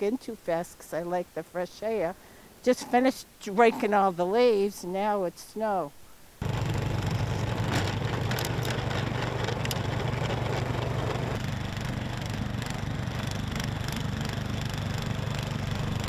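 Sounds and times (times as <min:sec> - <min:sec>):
engine running: 0:06.4 - 0:16.0.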